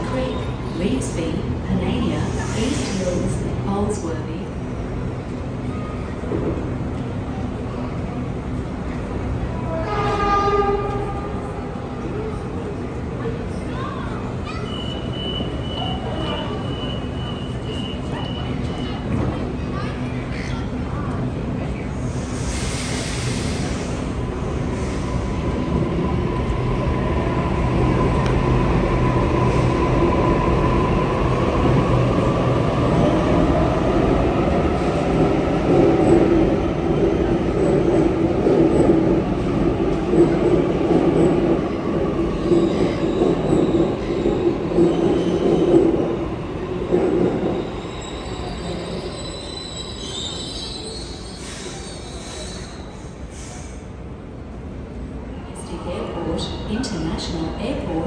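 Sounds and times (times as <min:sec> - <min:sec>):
electric train rumble: 0:00.0 - 0:49.7
high wheel squeal: 0:47.6 - 0:53.8.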